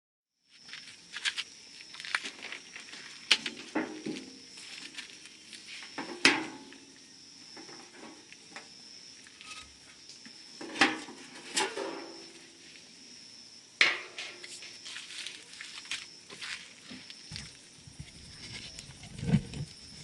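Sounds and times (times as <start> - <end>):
high insect trill: 0.4 - 20.0
firewood knocking and clattering: 3.3 - 4.5.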